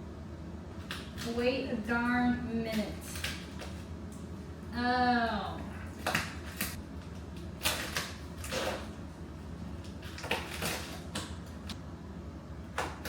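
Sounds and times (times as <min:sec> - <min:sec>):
plastic film peeling and crackling: 0:05.9 - 0:11.8.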